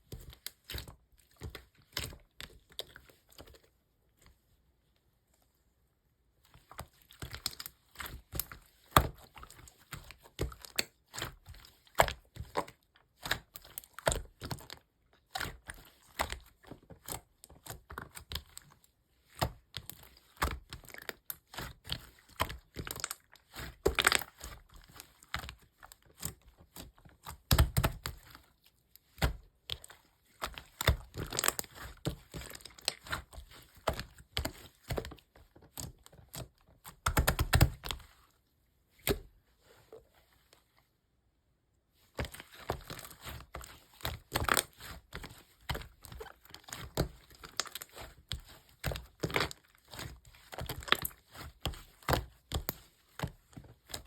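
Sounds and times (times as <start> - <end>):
slime popping and crackling: 37.0 - 38.0.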